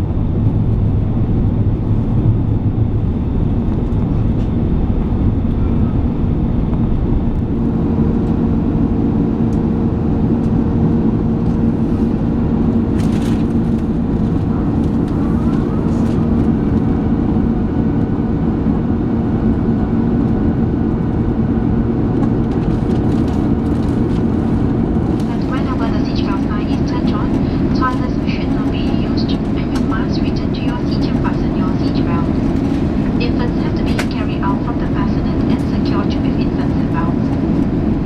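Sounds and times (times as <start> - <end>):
airplane cabin rumble and hum: 0.0 - 38.0.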